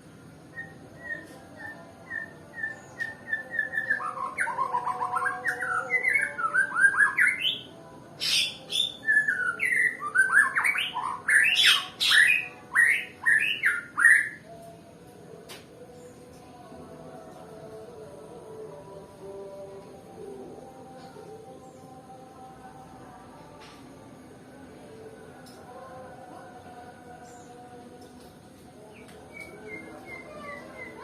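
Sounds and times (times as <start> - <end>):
bird singing whistled notes: 0.5 - 14.5, 29.0 - 31.0.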